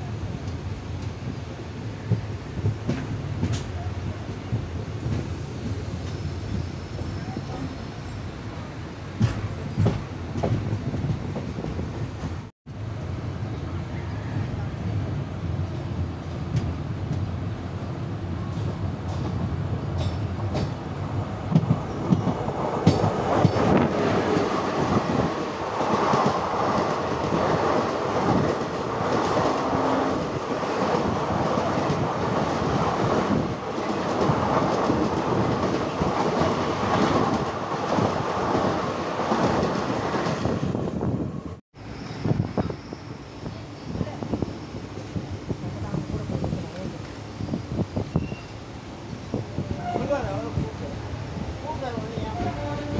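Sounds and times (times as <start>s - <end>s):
train rumbling on rails: 0.0s - 52.9s
wheels clacking over rail joints: 21.5s - 40.4s.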